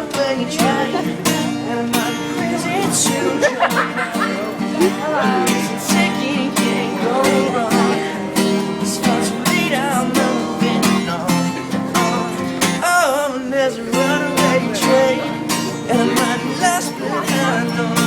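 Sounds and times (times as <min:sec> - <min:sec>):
acoustic guitar strumming: 0:00.0 - 0:18.0
person singing: 0:00.0 - 0:18.0.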